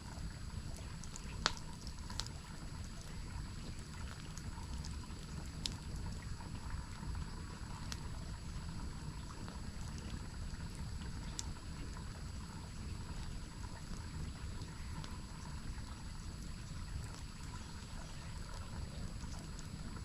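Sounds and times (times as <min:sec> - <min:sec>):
campfire crackles: 0:00.0 - 0:20.0.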